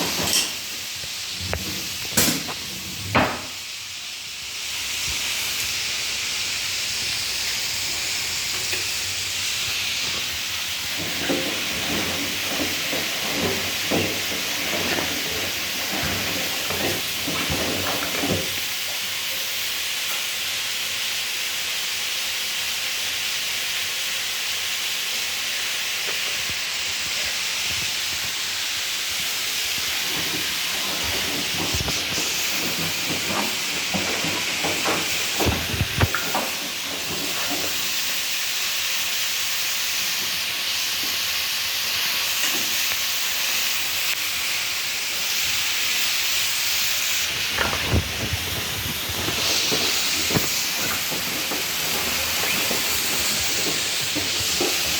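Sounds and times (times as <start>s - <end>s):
washing machine rushing hiss: 0.0s - 54.9s
irregular clicks and knocks: 10.9s - 18.6s, 30.0s - 38.0s, 47.5s - 54.9s.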